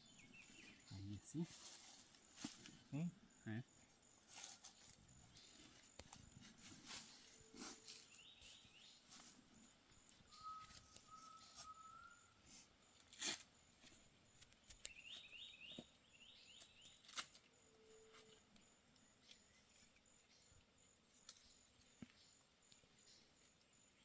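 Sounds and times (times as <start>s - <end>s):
bird calling high notes: 10.3s - 12.3s.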